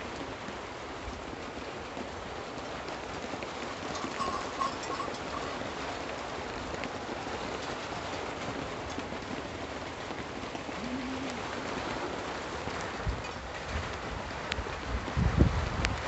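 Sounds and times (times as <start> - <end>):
heavy rain pouring: 0.0 - 16.0
faint high notes: 4.0 - 6.0.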